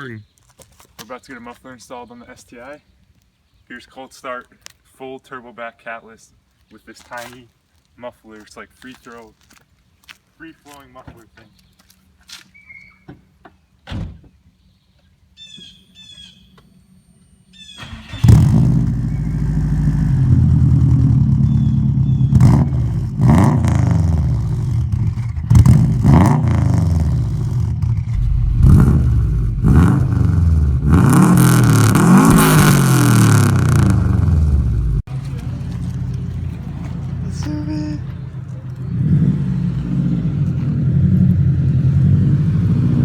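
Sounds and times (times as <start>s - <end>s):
car engine starting and revving: 17.6s - 37.4s, 38.4s - 43.0s.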